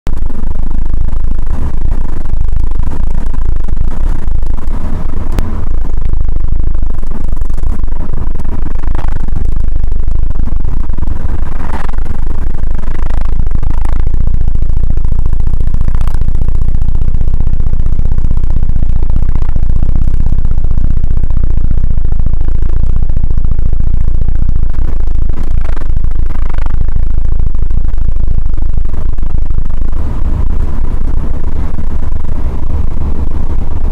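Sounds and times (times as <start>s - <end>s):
wind buffeting in car cabin: 0.1s - 15.0s, 23.6s - 33.9s.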